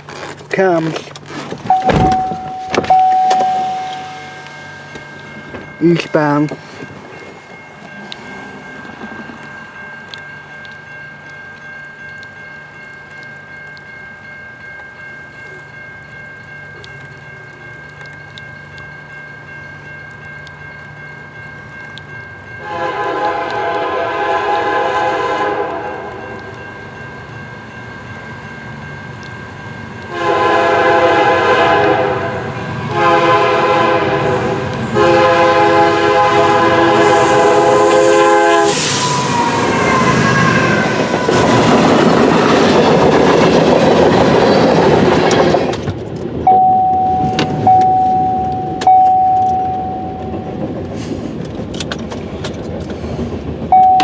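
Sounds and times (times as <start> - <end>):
train passing with wheel noise: 0.0 - 54.0
steady high tone: 1.7 - 23.1, 46.4 - 50.8, 53.7 - 54.0
locomotive air horn: 22.6 - 26.2, 30.1 - 41.0.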